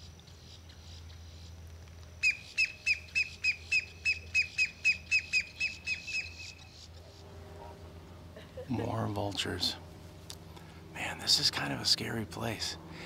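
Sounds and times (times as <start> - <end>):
bird calling in sharp notes: 2.2 - 7.8.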